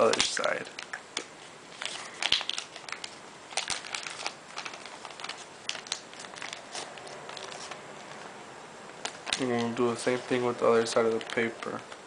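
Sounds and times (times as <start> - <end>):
paper being folded and creased: 1.8 - 8.3.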